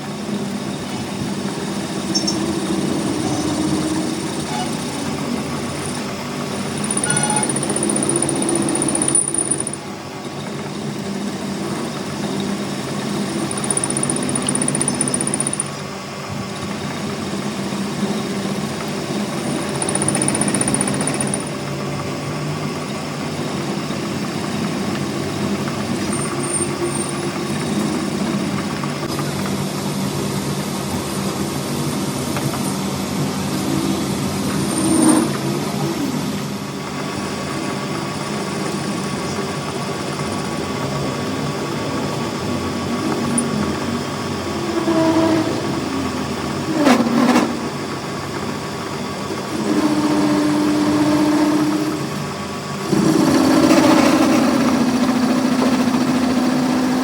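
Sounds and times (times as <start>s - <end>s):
workshop machinery humming: 0.0s - 57.0s
short louder machine sounds: 2.0s - 9.8s.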